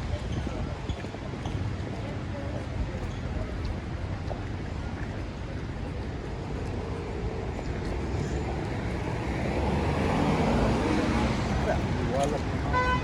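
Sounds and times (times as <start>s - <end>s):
approaching vehicle: 5.1s - 13.0s.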